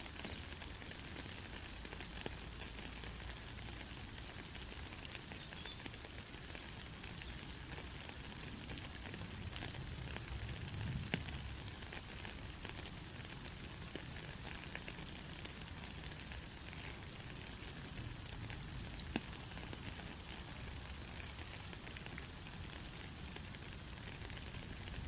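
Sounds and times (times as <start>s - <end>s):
fine crackles and clicks: 0.0s - 25.0s.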